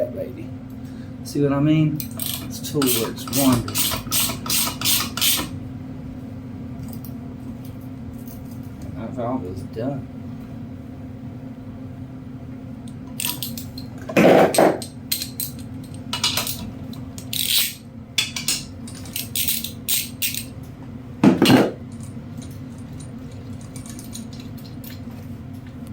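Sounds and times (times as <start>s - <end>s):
steady low hum: 0.0s - 25.9s
metal tools clinking and clunking: 13.1s - 20.6s, 21.2s - 25.2s.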